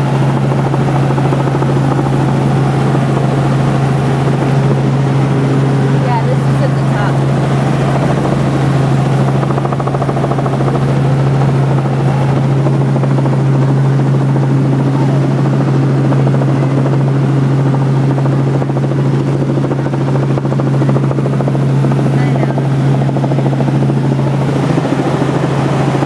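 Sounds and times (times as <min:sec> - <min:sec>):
constant low hum: 0:00.0 - 0:26.0
helicopter engine and rotor: 0:00.0 - 0:26.0.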